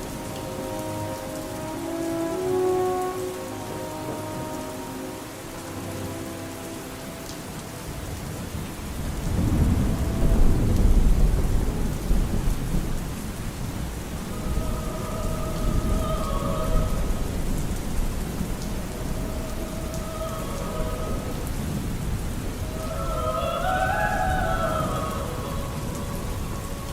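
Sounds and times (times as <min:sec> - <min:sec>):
steady rain: 0:00.0 - 0:26.9
thunder rumbling: 0:07.8 - 0:26.9.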